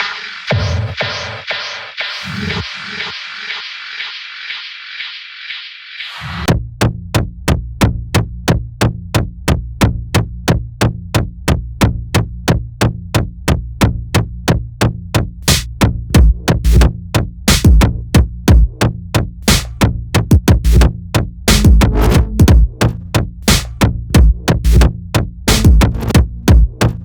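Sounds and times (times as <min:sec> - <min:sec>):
low bass drone: 0:21.5 - 0:22.8, 0:25.5 - 0:26.6
drum-machine clicks: 0:21.5 - 0:23.6, 0:25.5 - 0:27.0.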